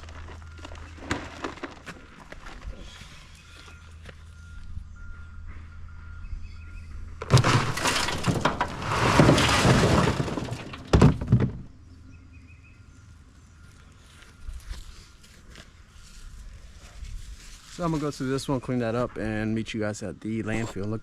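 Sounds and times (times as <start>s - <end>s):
concrete chunks crashing: 7.2s - 11.7s.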